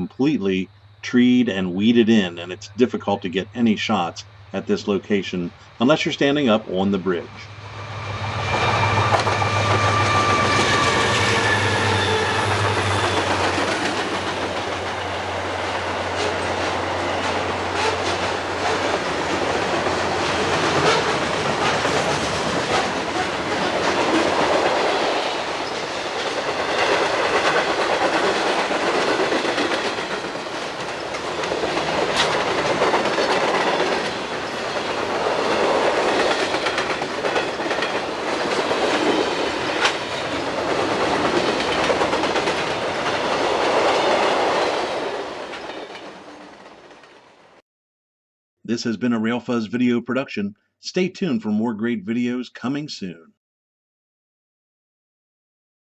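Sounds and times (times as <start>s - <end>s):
train cars rumbling: 0.2s - 47.3s
locomotive engine drone: 6.6s - 43.5s
wheels clicking over rail joints: 12.4s - 47.2s.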